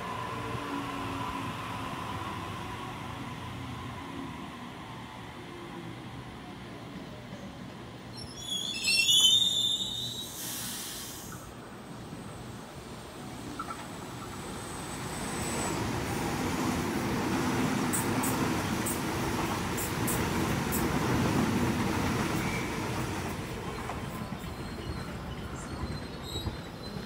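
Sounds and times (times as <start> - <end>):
train wheels rumbling on rails: 13.5 - 27.0.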